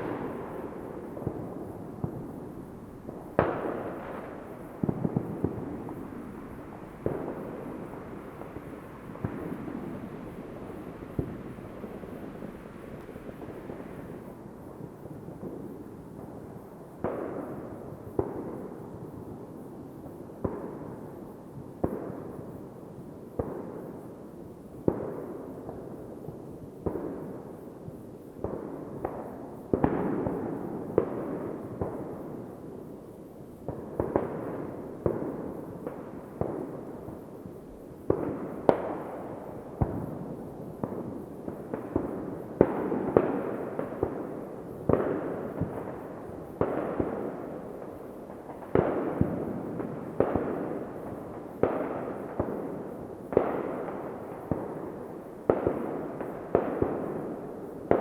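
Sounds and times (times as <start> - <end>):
background rumble of fireworks: 0.0 - 58.0
fireworks banging: 3.0 - 14.3.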